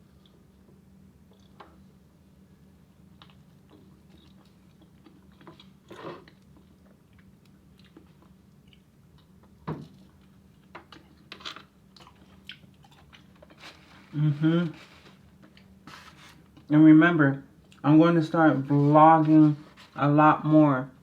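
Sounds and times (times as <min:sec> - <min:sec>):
faint low hum: 0:00.0 - 0:21.0
person chewing food: 0:00.1 - 0:01.7, 0:03.1 - 0:14.1.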